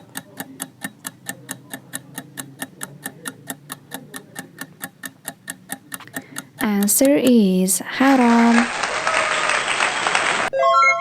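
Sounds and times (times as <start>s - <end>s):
clock ticking: 0.0s - 8.3s.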